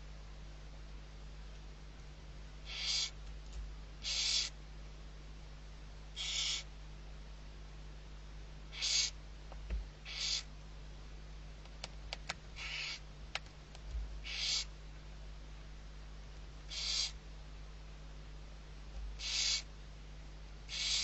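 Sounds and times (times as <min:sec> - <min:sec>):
owl chick hissing calls: 0:02.6 - 0:03.2, 0:04.0 - 0:04.6, 0:06.1 - 0:06.7, 0:08.7 - 0:09.2, 0:10.0 - 0:10.5, 0:12.5 - 0:13.0, 0:14.2 - 0:14.7, 0:16.6 - 0:17.2, 0:19.2 - 0:19.7, 0:20.7 - 0:21.0.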